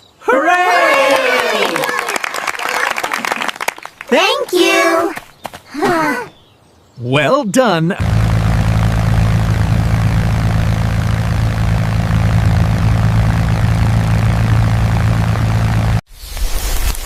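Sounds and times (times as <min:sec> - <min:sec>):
engine droning: 0:08.0 - 0:16.0.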